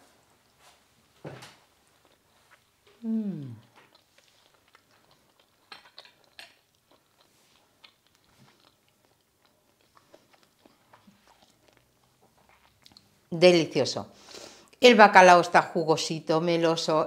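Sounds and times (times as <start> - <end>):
person quietly chewing: 1.8 - 13.3.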